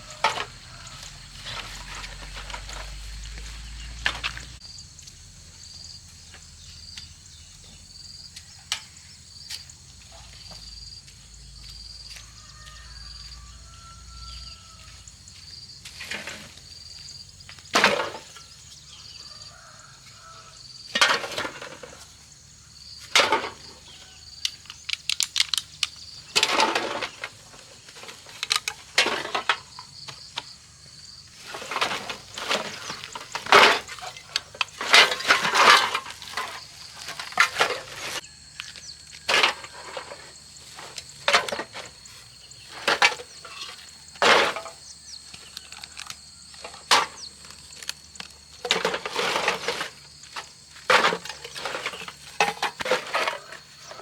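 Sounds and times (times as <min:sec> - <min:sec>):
debris knocking and clattering: 0:00.0 - 0:04.6, 0:17.7 - 0:18.6, 0:20.9 - 0:22.1, 0:23.0 - 0:24.0, 0:26.3 - 0:30.5, 0:31.4 - 0:38.2, 0:39.1 - 0:45.0, 0:48.5 - 0:54.0
insects chirping: 0:00.0 - 0:54.0.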